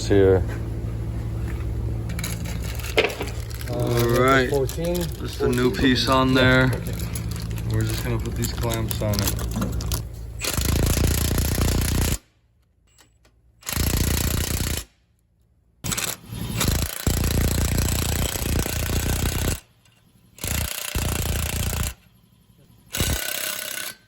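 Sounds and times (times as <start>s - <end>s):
impact wrench hammering: 2.1s - 3.7s, 4.5s - 12.3s, 15.8s - 19.6s, 20.4s - 22.0s, 22.9s - 24.0s.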